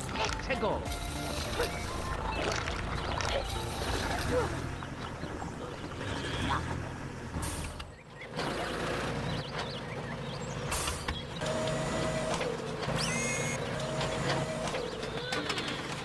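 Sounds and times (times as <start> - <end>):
tractor engine rumbling: 0.0 - 16.0
short high squeaks: 13.0 - 13.6.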